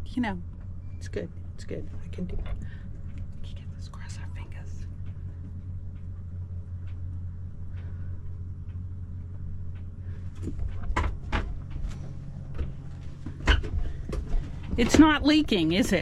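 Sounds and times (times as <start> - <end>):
sharp knocks and clicks: 9.7 - 15.8.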